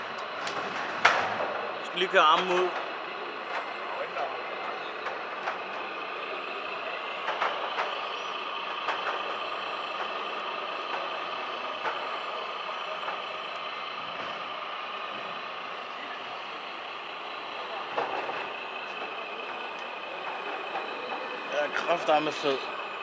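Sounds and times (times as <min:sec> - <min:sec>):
sharp clicks and knocks: 0:00.1 - 0:03.7, 0:07.2 - 0:08.1, 0:08.8 - 0:10.2.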